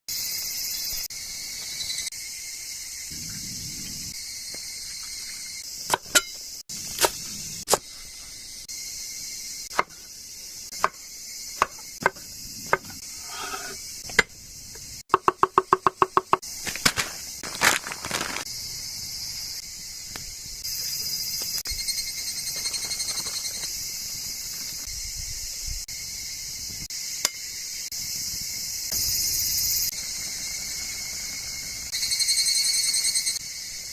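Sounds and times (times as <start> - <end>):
crickets and insects chirping: 0.1 - 33.9
camp cooking knocks and clicks: 4.5 - 7.9, 9.7 - 10.1, 10.7 - 18.5, 26.7 - 27.6.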